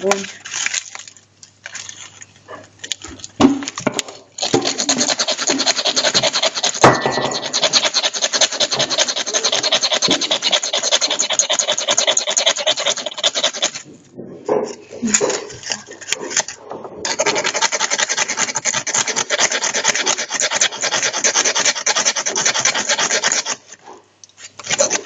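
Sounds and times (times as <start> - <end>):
ferro rod scraped with striker: 4.4 - 13.8, 15.2 - 23.7, 24.4 - 25.0.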